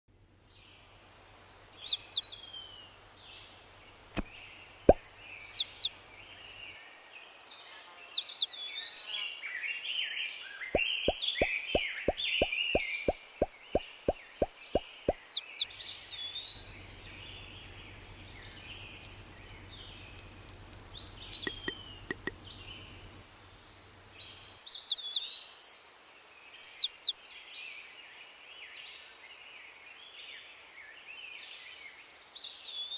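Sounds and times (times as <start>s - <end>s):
birds chirping: 0.2s - 6.8s, 15.6s - 24.6s
pulsing insect-like trill: 0.2s - 6.8s, 15.7s - 24.6s
sharp falling chirps: 0.5s - 6.8s, 15.7s - 24.6s.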